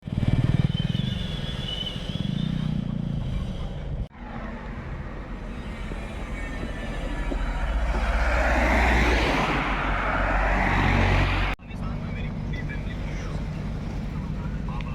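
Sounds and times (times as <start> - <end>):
tractor diesel engine running: 4.2 - 14.9.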